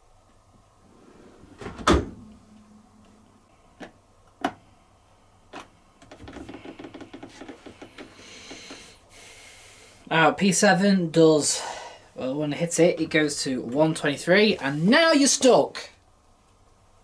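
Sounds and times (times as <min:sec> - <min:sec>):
dishwasher rattling: 0:01.0 - 0:02.9
dishwasher heavy thump: 0:01.2 - 0:02.9
dishwasher clicks: 0:01.4 - 0:02.9.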